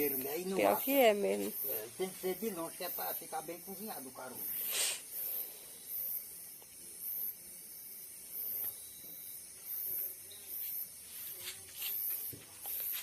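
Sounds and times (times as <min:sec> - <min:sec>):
high hissing pulses: 0:01.6 - 0:06.5.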